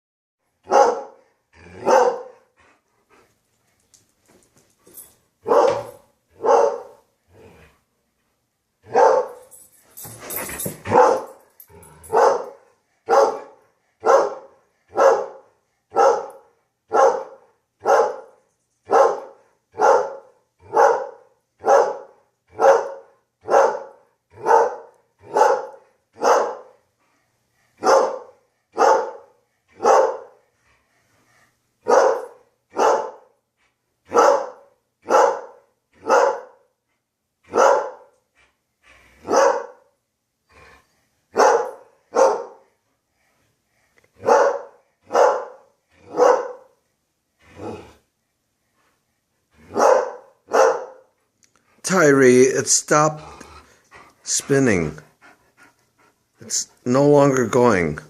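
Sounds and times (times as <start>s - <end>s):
dog barking: 0.7s - 1.2s, 1.8s - 2.4s, 5.4s - 7.0s, 8.9s - 9.4s, 10.9s - 11.4s, 12.1s - 26.8s, 27.8s - 30.4s, 31.8s - 33.4s, 34.1s - 36.7s, 37.5s - 38.1s, 39.2s - 39.9s, 41.4s - 42.6s, 44.2s - 46.7s, 49.7s - 51.1s.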